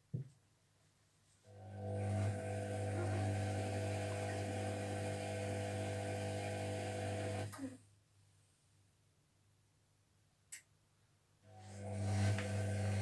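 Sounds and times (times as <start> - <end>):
washing machine humming: 1.6 - 7.6, 11.6 - 13.0.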